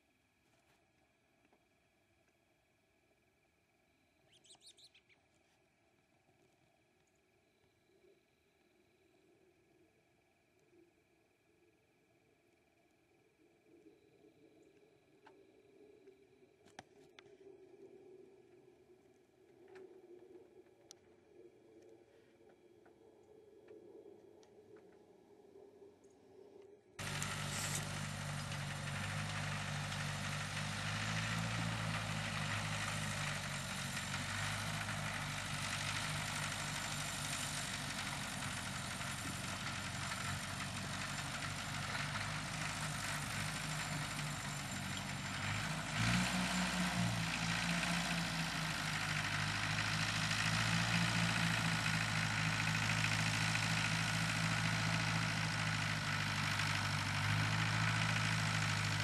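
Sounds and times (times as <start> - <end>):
tractor engine running: 27.0 - 59.0.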